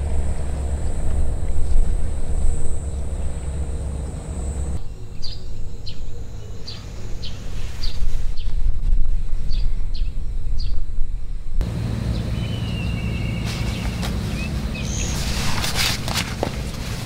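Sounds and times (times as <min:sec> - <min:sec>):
steady low rumble: 0:00.0 - 0:07.6, 0:08.3 - 0:17.0
low hum: 0:00.0 - 0:08.3, 0:09.1 - 0:17.0
small birds chirping: 0:00.0 - 0:08.6, 0:12.0 - 0:15.8
bird whistled call: 0:12.3 - 0:15.6
rustling: 0:13.4 - 0:17.0.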